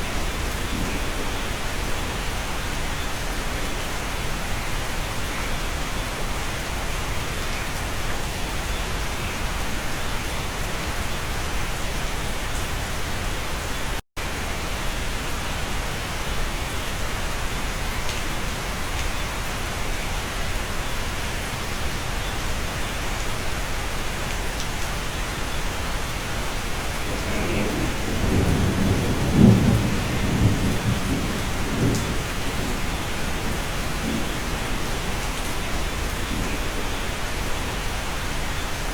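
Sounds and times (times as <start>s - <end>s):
thunder rolling: 0.0s - 2.0s, 26.8s - 37.1s
steady rain: 0.0s - 38.9s.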